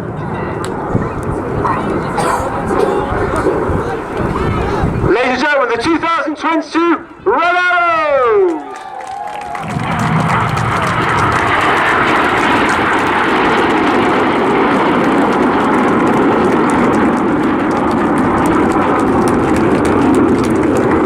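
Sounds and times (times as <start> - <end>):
jets flying past: 9.6 - 21.0.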